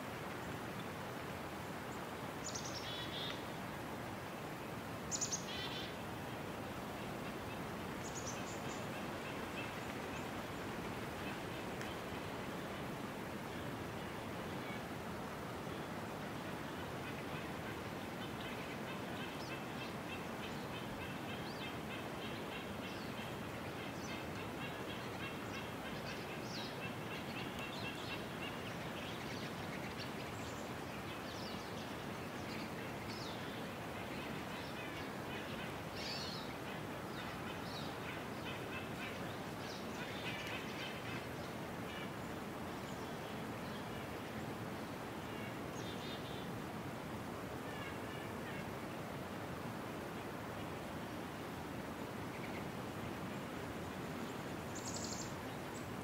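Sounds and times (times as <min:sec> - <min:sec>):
steady background hiss: 0:00.0 - 0:56.0
small birds chirping and trilling: 0:54.7 - 0:55.8.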